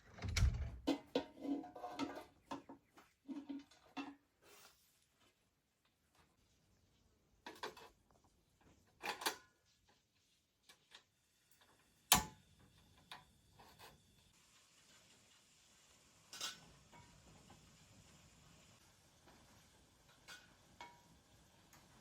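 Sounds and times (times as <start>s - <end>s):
faint steady hiss: 4.4s - 22.0s.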